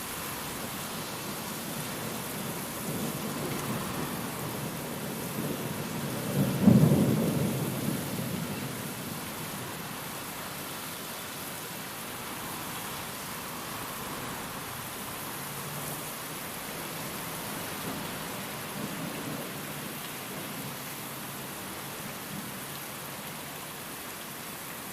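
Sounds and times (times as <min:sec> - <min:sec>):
steady rain: 0:00.0 - 0:24.9
thunder rumbling: 0:01.8 - 0:09.2.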